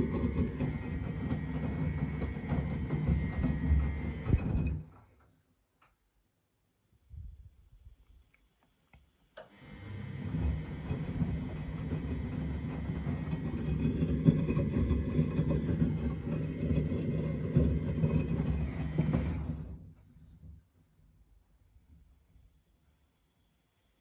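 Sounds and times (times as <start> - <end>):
washing machine drum rumble: 0.0 - 5.0, 10.1 - 19.8.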